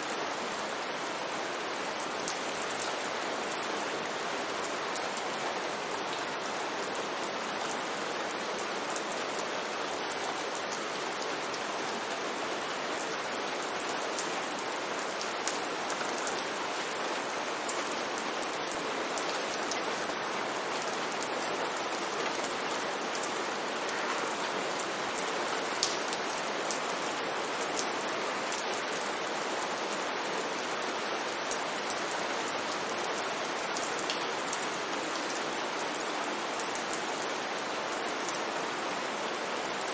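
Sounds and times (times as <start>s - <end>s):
rain falling on street: 0.0s - 39.9s
raindrop ticks: 25.2s - 26.3s.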